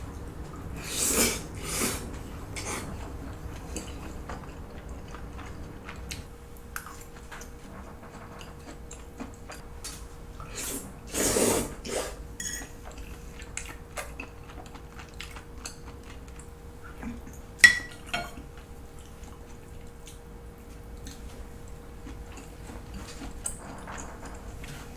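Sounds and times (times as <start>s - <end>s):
cutlery clinking on a plate: 12.4s - 12.7s, 17.6s - 18.4s.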